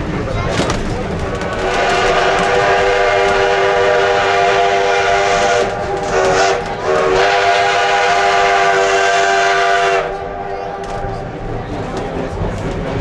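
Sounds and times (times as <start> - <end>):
steam locomotive whistle: 1.5 - 11.2.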